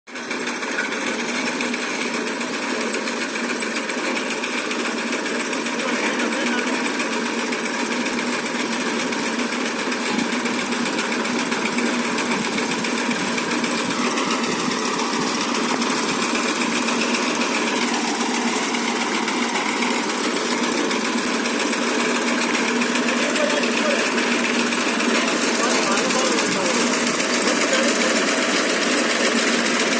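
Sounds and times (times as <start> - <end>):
diesel tractor engine clattering: 0.1 - 29.9.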